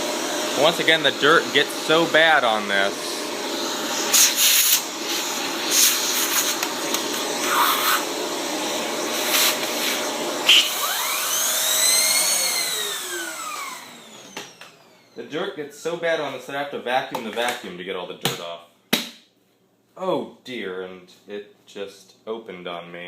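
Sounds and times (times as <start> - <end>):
upright vacuum running: 0.0 - 15.4.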